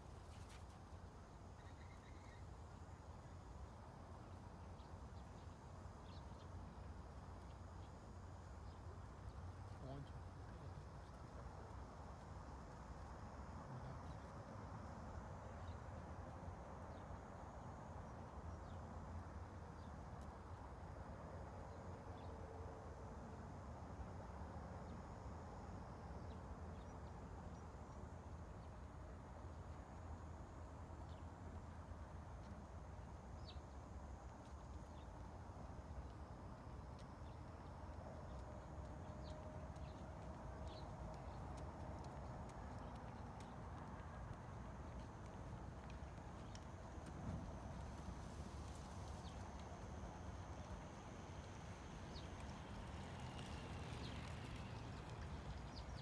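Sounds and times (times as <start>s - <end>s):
faint bird chirps: 1.6s - 2.5s
low outdoor rumble: 25.8s - 56.0s
soft even hiss: 44.1s - 56.0s.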